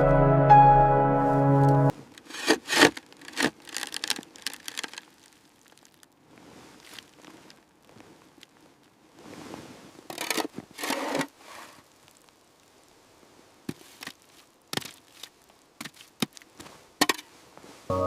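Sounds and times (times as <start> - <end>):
stones scraping: 2.0 - 8.6, 10.0 - 12.3
stones clicking and knocking: 2.2 - 6.2, 13.7 - 17.3.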